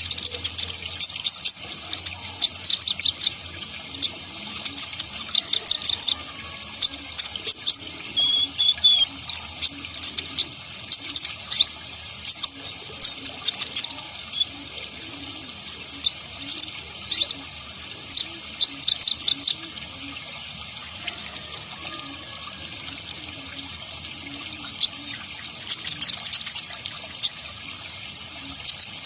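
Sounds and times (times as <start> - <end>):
bird chirping high: 4.0 - 14.8, 18.1 - 19.6.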